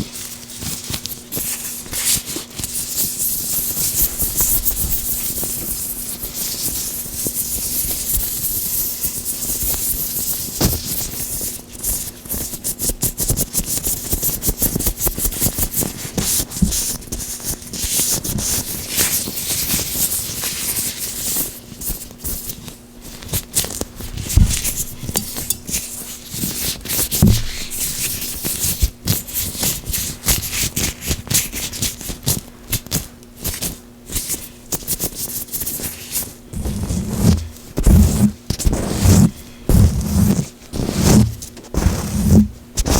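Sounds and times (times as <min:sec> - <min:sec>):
gloved hands rubbing: 0:27.0 - 0:28.4, 0:35.0 - 0:42.9.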